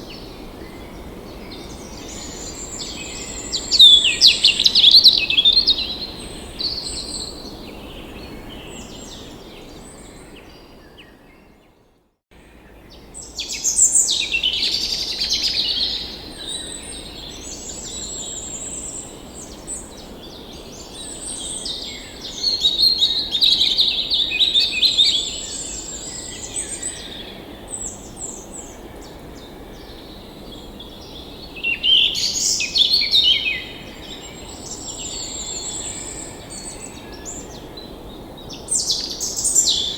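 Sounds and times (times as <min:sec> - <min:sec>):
songbirds singing and chirping: 0:00.0 - 0:11.6, 0:12.5 - 0:39.9.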